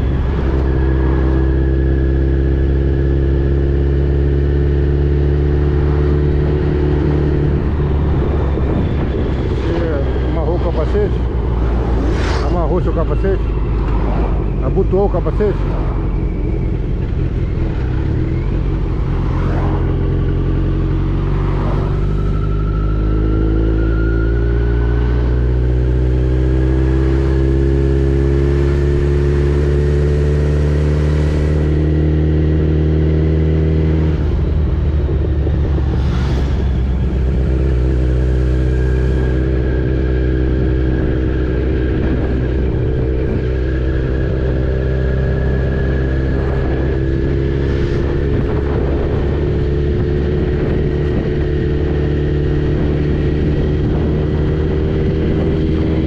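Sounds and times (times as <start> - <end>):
motorcycle engine running: 25.7 - 56.0.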